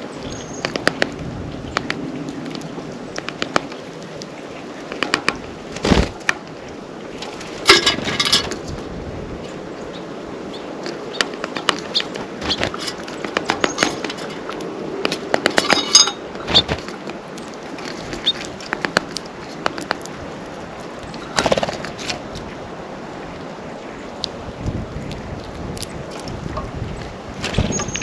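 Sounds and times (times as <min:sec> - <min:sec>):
birds pecking and tapping: 0:00.4 - 0:06.5, 0:10.8 - 0:22.6, 0:24.1 - 0:28.0.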